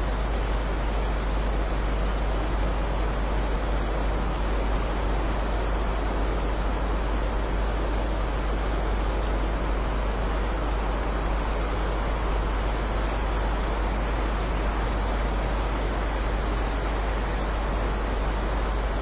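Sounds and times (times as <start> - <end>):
heavy rainfall: 0.1 - 19.0.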